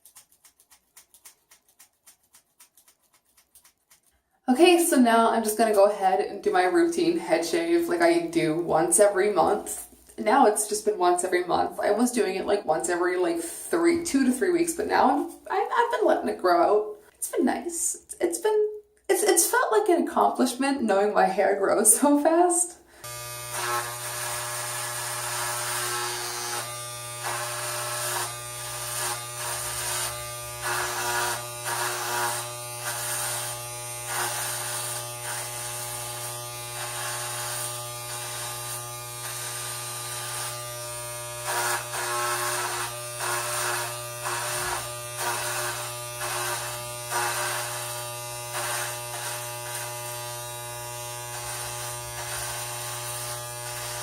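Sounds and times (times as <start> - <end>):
electric hair clippers buzzing: 23.0 - 54.0.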